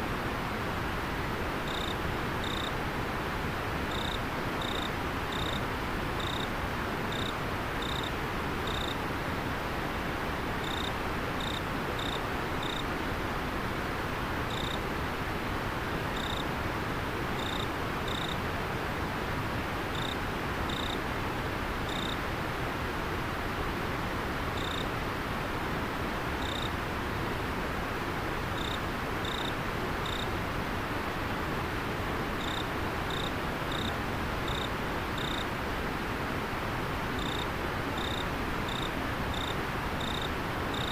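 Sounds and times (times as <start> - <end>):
cricket chirping: 1.7 - 2.8, 3.9 - 5.6, 6.2 - 6.5, 7.1 - 9.0, 10.6 - 12.8, 14.5 - 14.8, 16.2 - 16.4, 17.4 - 18.4, 19.9 - 21.0, 21.9 - 22.2, 24.6 - 24.9, 26.4 - 26.7, 28.6 - 30.3, 32.4 - 35.5, 37.2 - 40.9.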